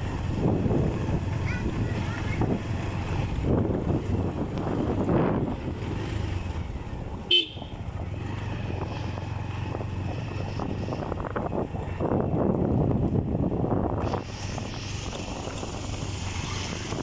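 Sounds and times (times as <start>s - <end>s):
motorcycle engine running: 0.0s - 17.0s
wind rushing over microphone: 0.0s - 17.0s
short horn beep: 7.3s - 7.8s.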